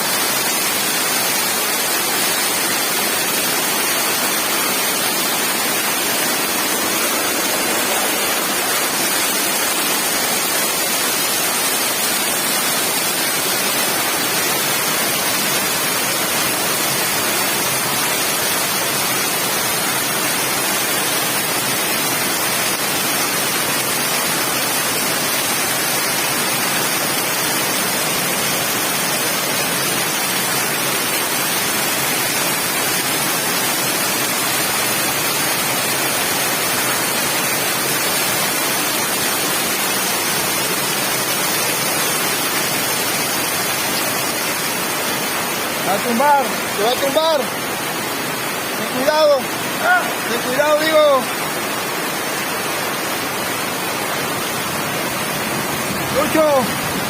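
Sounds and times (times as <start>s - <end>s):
floodwater rushing: 0.0s - 57.0s.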